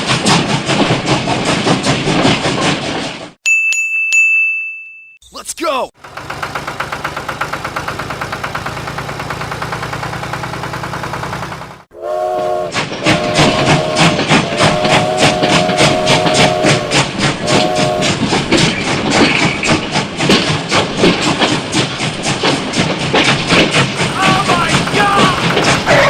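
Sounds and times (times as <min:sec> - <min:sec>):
multi-note horn blasts: 0:12.0 - 0:18.2
fast steady clatter: 0:13.0 - 0:26.0.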